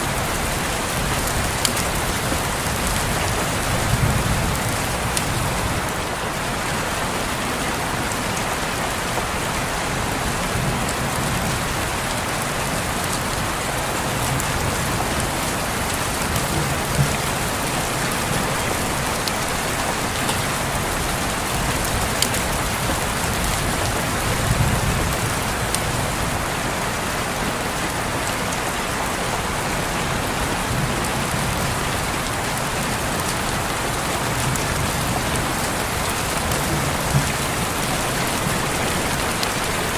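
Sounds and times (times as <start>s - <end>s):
rain on a window: 0.0s - 39.9s
raindrop hits: 13.2s - 26.4s, 33.5s - 39.9s.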